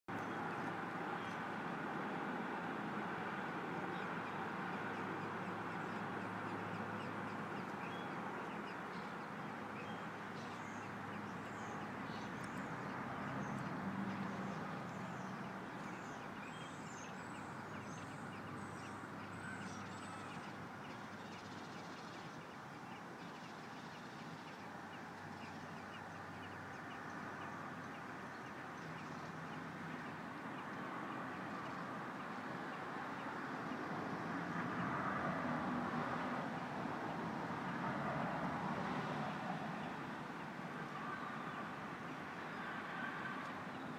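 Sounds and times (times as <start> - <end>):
small birds chirping: 0.1 - 34.8.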